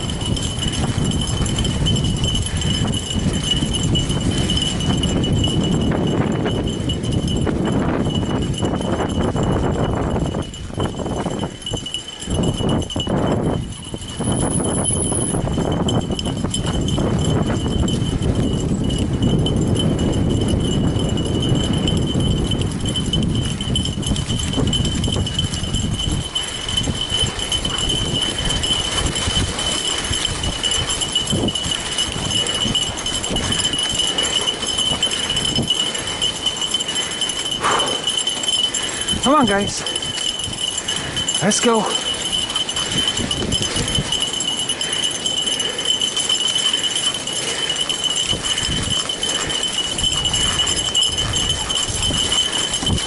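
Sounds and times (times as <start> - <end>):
bike tyres rumbling on trail: 0.0 - 39.2, 42.1 - 53.0
rattles and clicks: 0.0 - 53.0
thin steady high tone: 0.0 - 53.0
bike tyres rumbling and rattling: 0.3 - 9.5.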